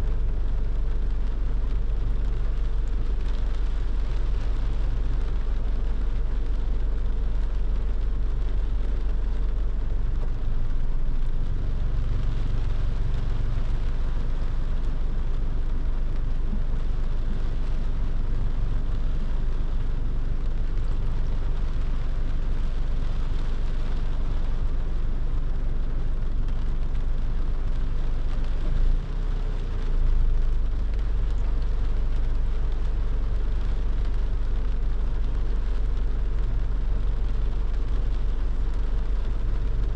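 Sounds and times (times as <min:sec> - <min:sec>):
car engine and road rumble: 0:00.0 - 0:39.9
rain: 0:00.0 - 0:39.9
tyres hissing on wet road: 0:00.0 - 0:39.9.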